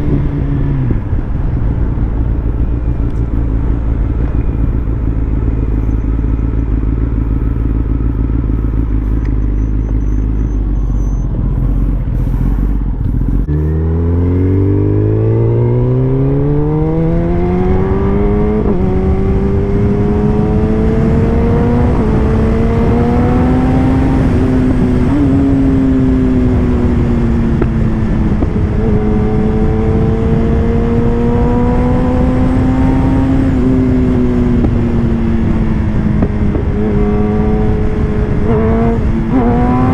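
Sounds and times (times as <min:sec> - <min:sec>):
wind rush: 0:00.0 - 0:08.2, 0:11.3 - 0:39.9
motorbike engine accelerating: 0:00.0 - 0:39.9.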